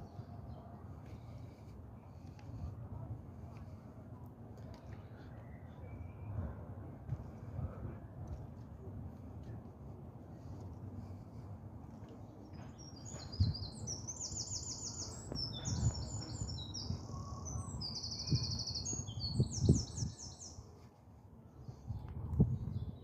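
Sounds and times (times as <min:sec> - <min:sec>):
songbird trilling song: 0:12.6 - 0:20.7.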